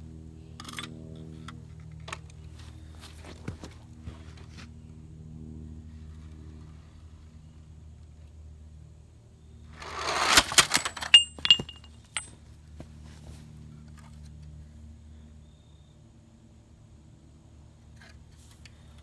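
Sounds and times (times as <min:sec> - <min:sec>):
crash of cracks and clatter: 0:09.8 - 0:12.3.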